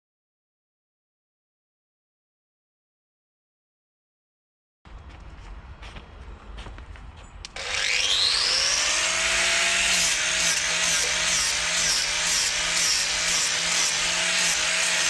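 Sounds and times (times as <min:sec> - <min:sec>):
chainsaw cutting into wood: 0:07.5 - 0:15.0.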